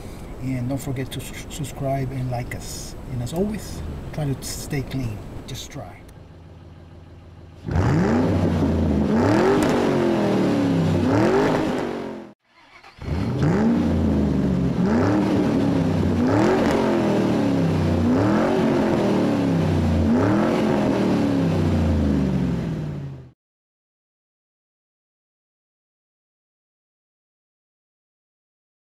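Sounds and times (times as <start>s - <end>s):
car engine revving: 2.4s - 23.4s.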